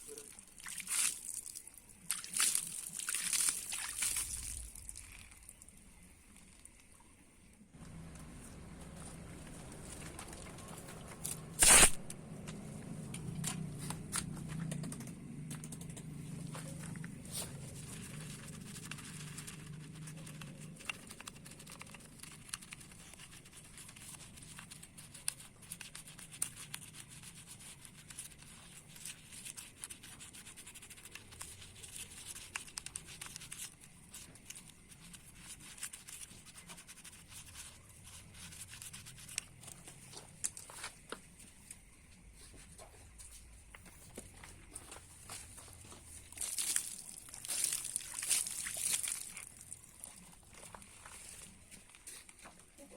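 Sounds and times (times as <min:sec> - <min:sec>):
low hum: 0:07.8 - 0:21.2
sharp loud click: 0:11.6 - 0:12.2.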